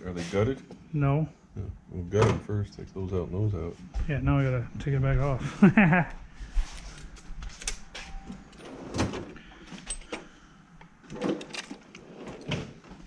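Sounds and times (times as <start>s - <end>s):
car parts clicking and scraping: 6.7s - 13.0s.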